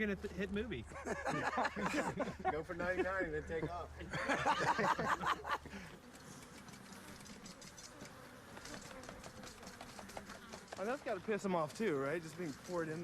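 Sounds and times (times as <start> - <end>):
bees buzzing: 0.9 - 13.0
faint ticks: 6.1 - 13.0.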